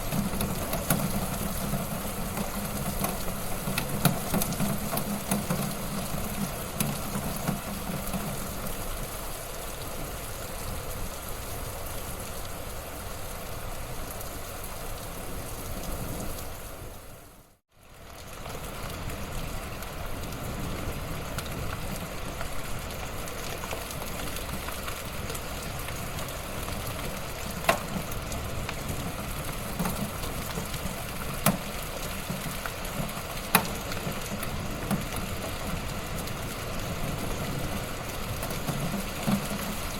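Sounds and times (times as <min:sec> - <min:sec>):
wood fire crackling and popping: 0:00.0 - 0:10.0, 0:18.0 - 0:39.9.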